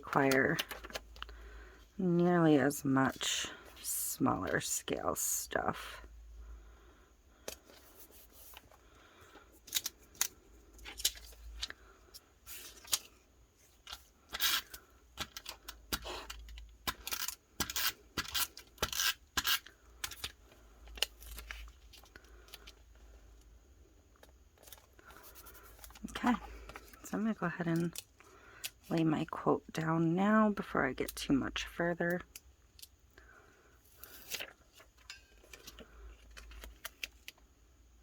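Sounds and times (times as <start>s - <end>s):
paper rustling: 7.4s - 16.6s.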